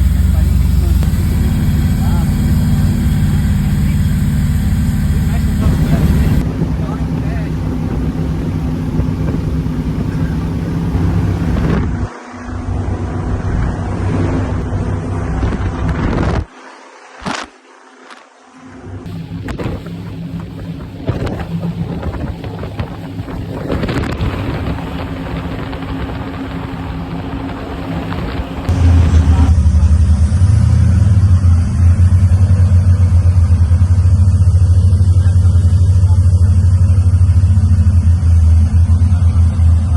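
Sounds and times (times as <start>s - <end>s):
wind buffeting microphone: 0.0s - 12.1s, 19.1s - 29.6s
powerboat engines running: 0.0s - 16.7s, 19.1s - 39.9s.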